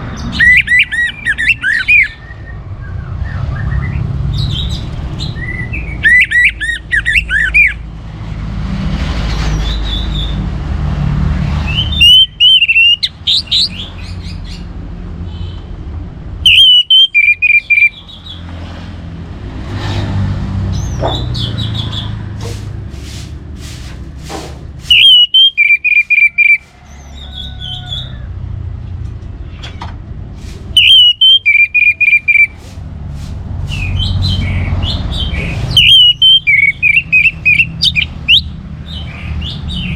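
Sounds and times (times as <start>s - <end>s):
bird whistling short phrases: 0.3s - 2.5s, 5.4s - 7.8s, 11.7s - 13.8s, 16.5s - 18.4s, 24.9s - 26.6s, 30.8s - 32.6s, 35.7s - 38.5s.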